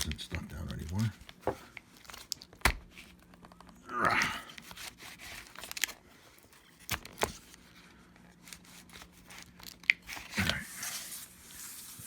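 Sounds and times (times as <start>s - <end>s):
tape tearing rustle: 4.5s - 7.7s, 8.3s - 12.0s.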